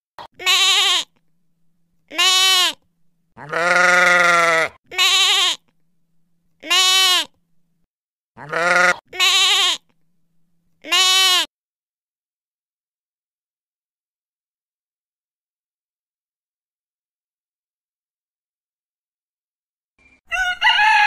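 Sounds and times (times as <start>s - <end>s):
goats bleating: 0.3s - 1.1s, 2.1s - 2.8s, 3.4s - 5.6s, 6.6s - 7.3s, 8.4s - 9.8s, 10.8s - 11.5s.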